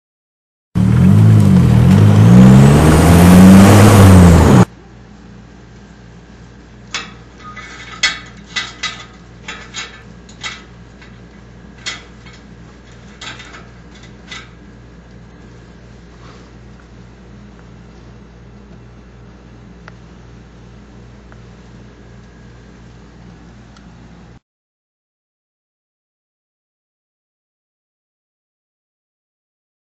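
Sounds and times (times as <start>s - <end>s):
car engine revving: 0.8s - 4.7s
low steady hum: 0.8s - 24.4s.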